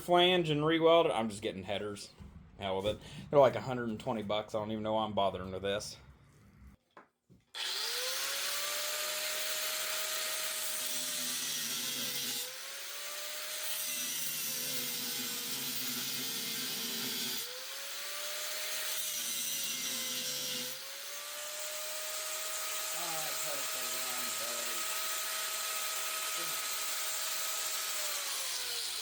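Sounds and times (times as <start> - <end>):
angle grinder cutting metal: 7.6 - 29.0.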